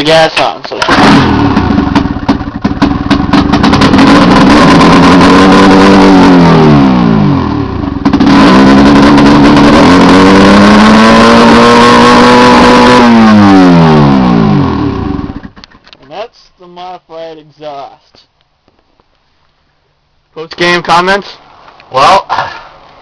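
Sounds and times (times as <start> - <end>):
snowmobile engine revving: 0.8 - 2.2, 2.8 - 15.4.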